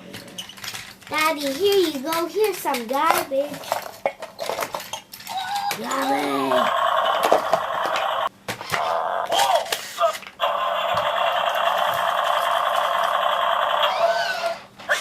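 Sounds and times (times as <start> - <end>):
tinny buzzy toy speaker noise: 5.7 - 15.0.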